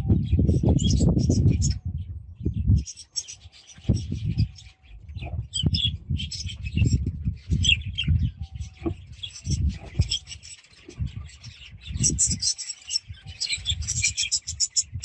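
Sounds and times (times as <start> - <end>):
budgerigars chattering: 7.6 - 14.9.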